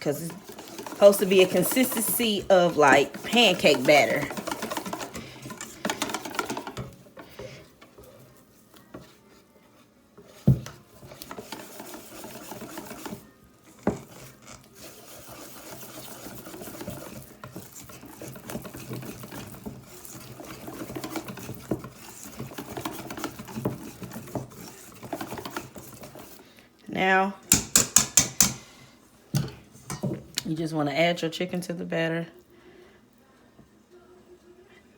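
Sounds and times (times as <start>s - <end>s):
whisk scraping and clicking in bowl: 0.0s - 26.5s, 27.5s - 28.7s.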